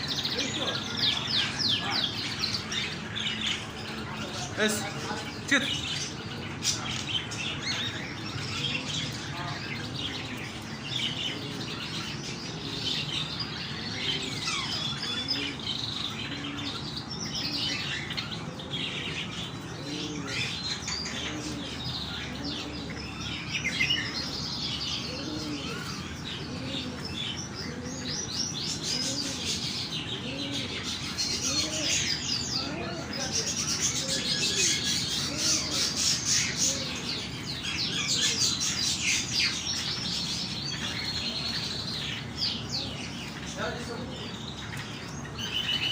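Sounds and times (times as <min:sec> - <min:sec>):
pigeons cooing: 0:00.0 - 0:45.9
small birds chirping: 0:00.0 - 0:45.9.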